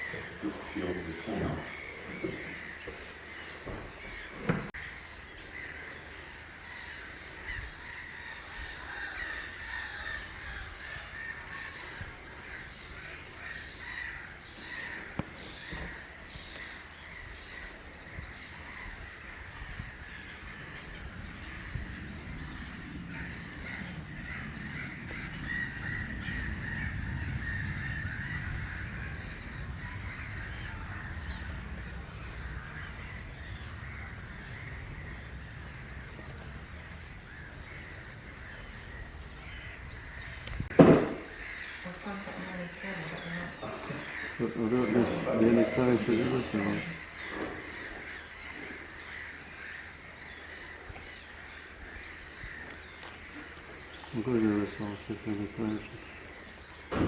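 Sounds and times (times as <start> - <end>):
flock of birds calling: 0.0 - 57.0
low rumble: 19.4 - 40.8.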